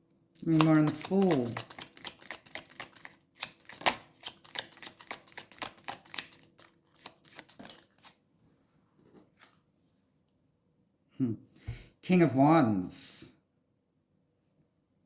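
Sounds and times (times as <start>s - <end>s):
cards being shuffled by hand: 0.4s - 8.2s.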